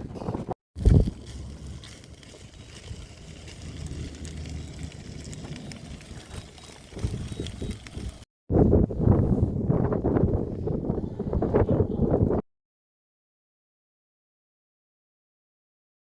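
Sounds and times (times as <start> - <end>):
low steady fire rumble: 0.1 - 10.8
campfire crackling: 0.8 - 8.3.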